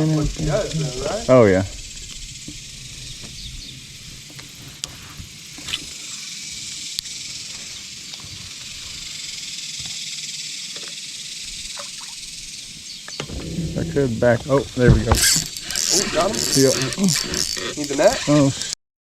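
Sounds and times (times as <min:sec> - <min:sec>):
insects buzzing: 0:00.0 - 0:18.8
low hum: 0:13.3 - 0:17.6.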